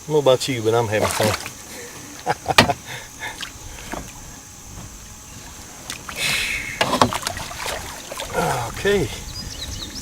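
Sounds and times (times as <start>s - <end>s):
knocks against canoe: 2.5s - 2.9s, 3.8s - 4.9s, 6.8s - 7.8s.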